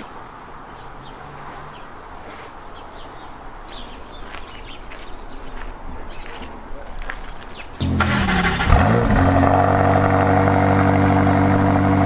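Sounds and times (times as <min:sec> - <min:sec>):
small birds chirping: 0:00.0 - 0:07.8.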